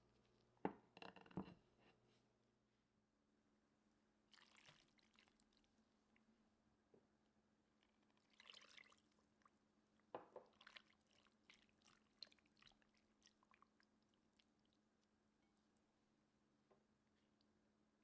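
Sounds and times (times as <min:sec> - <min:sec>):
liquid pouring: 0:04.3 - 0:05.6
clicks and squishes of mixing: 0:04.3 - 0:06.3, 0:07.8 - 0:16.0.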